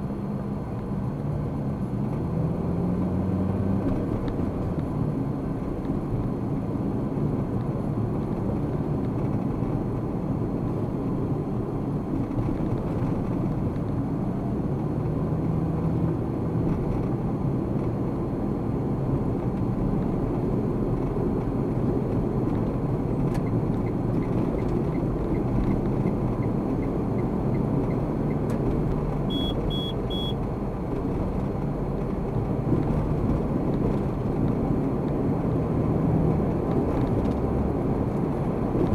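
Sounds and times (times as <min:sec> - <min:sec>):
car engine and tyre rumble: 0:00.0 - 0:38.9
short high beeps: 0:29.3 - 0:30.4.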